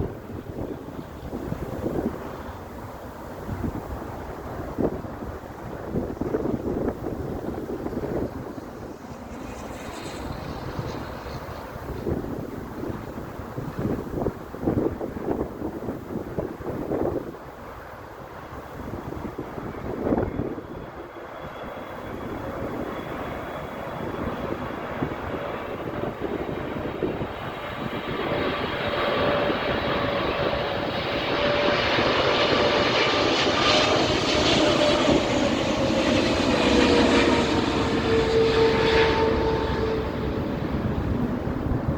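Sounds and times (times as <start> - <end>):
airliner engines on approach: 0.0 - 41.9.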